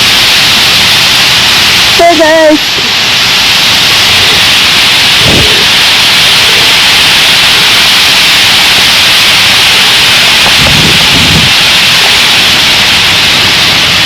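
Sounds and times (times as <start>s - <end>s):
flock of birds chattering: 5.2s - 5.8s.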